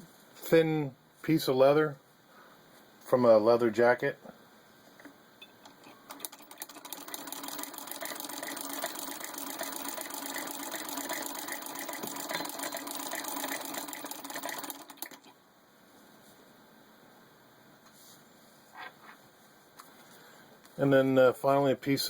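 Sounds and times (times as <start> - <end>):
sewing machine clattering: 6.1 - 15.3.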